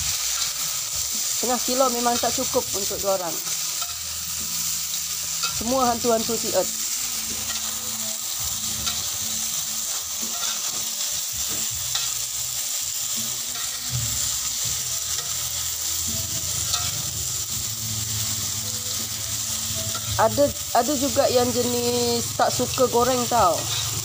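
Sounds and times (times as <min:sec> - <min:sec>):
grubs sizzling in a wok: 0:00.0 - 0:24.0
spatula scraping a pan: 0:07.1 - 0:12.4, 0:13.0 - 0:17.5.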